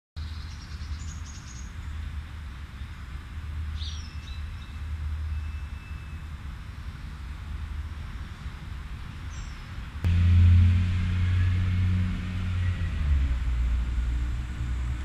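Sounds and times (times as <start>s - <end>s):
steady low rumble: 6.4s - 15.0s.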